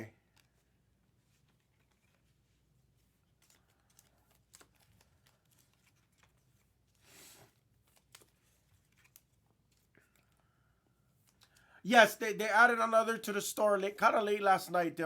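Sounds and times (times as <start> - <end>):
trading cards clicking and rustling: 0.2 - 10.4.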